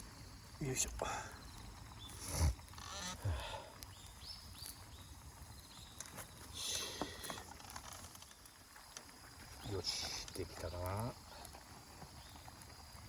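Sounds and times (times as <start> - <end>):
bird chirping: 1.2 - 7.3, 9.2 - 12.7.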